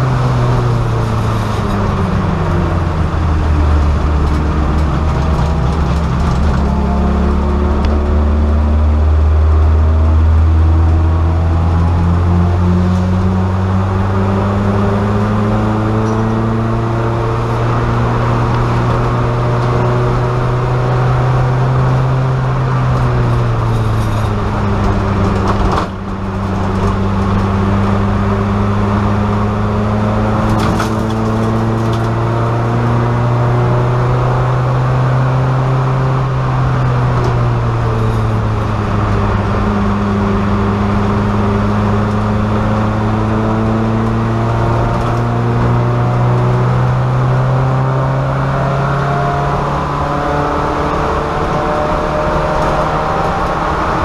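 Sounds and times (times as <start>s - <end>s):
race car engine under load: 0.0s - 54.0s.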